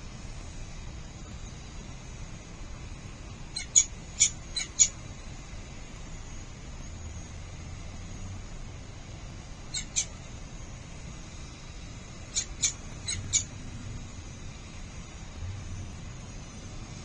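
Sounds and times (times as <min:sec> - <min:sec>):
low background rumble: 0:00.0 - 0:17.0
falcon high-pitched cries: 0:03.6 - 0:05.0, 0:09.7 - 0:10.2, 0:12.3 - 0:13.5.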